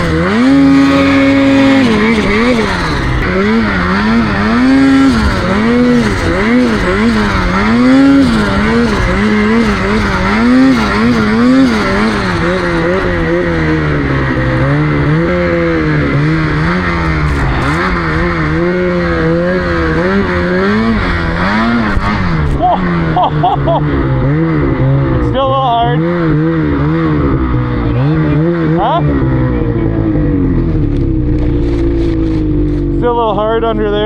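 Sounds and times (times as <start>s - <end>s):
snowmobile engine revving: 0.0s - 34.0s.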